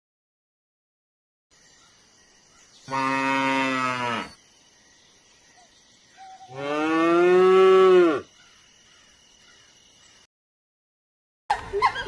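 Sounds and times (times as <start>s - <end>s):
cow mooing: 2.9s - 4.4s, 6.4s - 8.3s.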